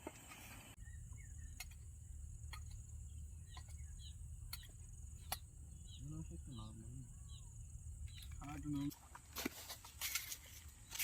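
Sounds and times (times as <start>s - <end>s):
insects chirring: 0.3s - 11.0s
faint bird chirps: 0.6s - 8.9s.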